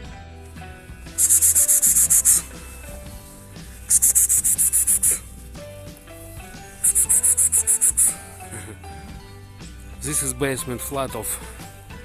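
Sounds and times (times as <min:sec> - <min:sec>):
background music with held tones: 0:00.0 - 0:12.0
rapid high scratchy pulses: 0:01.1 - 0:02.7, 0:03.8 - 0:05.2, 0:06.8 - 0:08.2.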